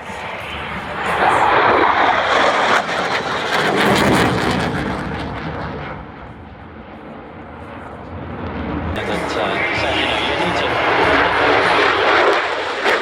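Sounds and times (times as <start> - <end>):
aircraft flying past: 0.0 - 13.0.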